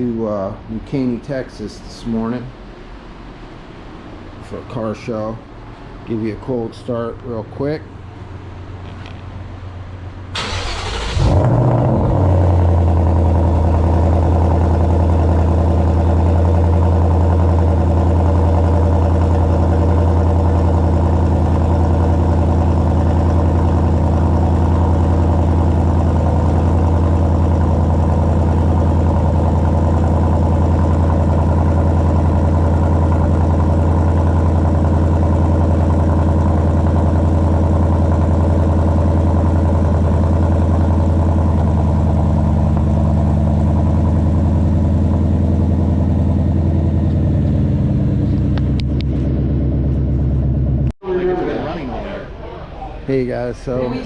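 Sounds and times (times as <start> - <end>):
car engine starting and idling: 8.4 - 51.0.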